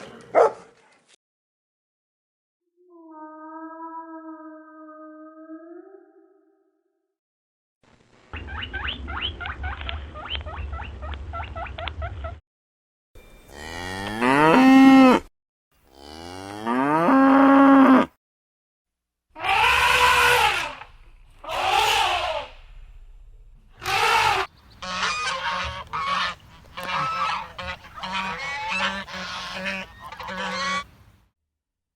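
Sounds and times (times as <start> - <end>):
cattle mooing: 13.5 - 15.3, 15.9 - 18.1
rapid pulsed animal call: 19.4 - 23.0.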